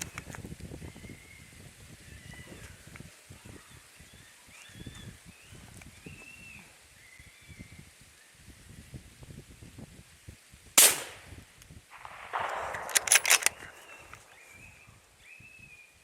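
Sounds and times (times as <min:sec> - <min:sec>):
rifle shot: 0:10.8 - 0:14.8
sharp clicks: 0:12.0 - 0:14.5
rustling: 0:12.0 - 0:14.8.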